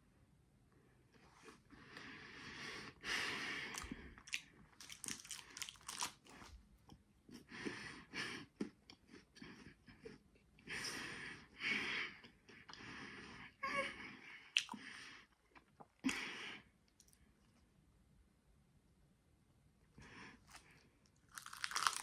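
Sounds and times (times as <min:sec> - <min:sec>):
crunching wafer chewing: 0:03.7 - 0:06.5, 0:20.5 - 0:22.0.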